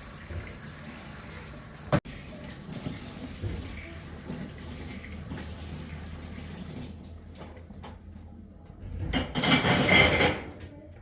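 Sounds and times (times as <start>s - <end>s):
water running from a tap: 0.0s - 7.8s.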